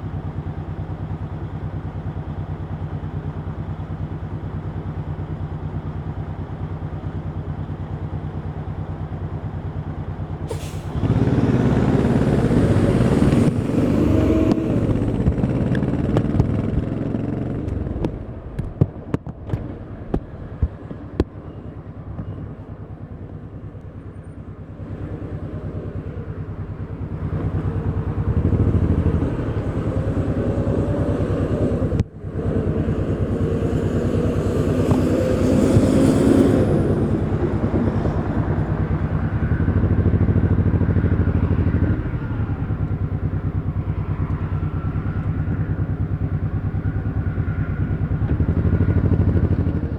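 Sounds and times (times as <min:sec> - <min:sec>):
motorcycle engine revving: 0:00.2 - 0:19.8, 0:23.6 - 0:49.9
engine exhaust pops: 0:14.4 - 0:21.5.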